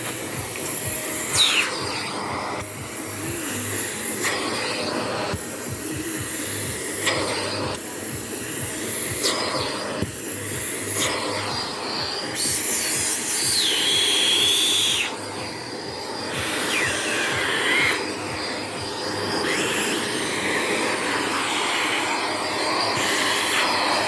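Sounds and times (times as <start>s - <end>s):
vacuum cleaner running: 0.0s - 24.0s
high whistle: 12.4s - 15.2s, 16.4s - 18.1s.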